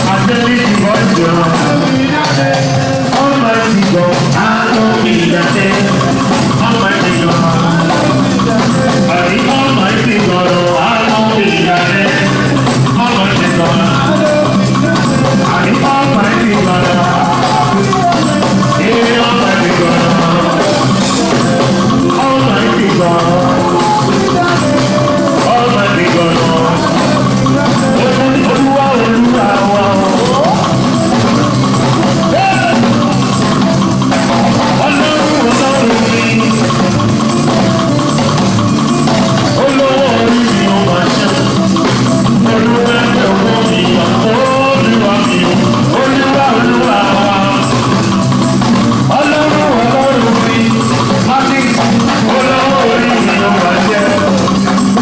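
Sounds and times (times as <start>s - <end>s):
drum kit and percussion beat: 0.0s - 55.0s
live band music: 0.0s - 55.0s.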